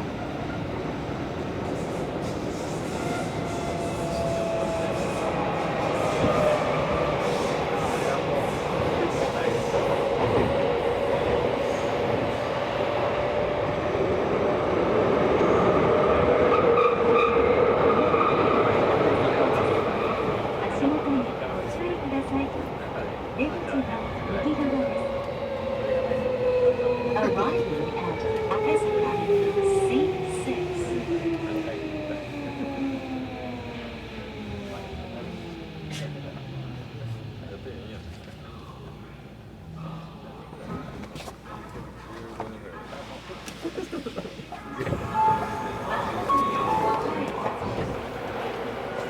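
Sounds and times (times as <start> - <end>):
wheels rumbling on rail: 16.6 - 49.0.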